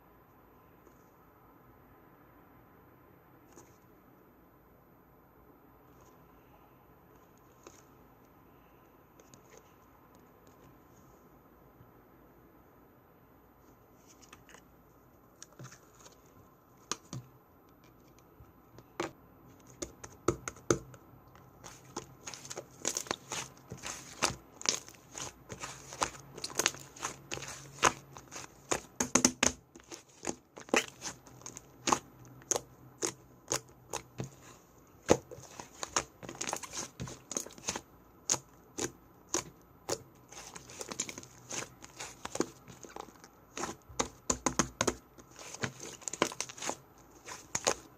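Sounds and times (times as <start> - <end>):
slime squishing with pops: 16.8 - 17.3, 18.8 - 47.9.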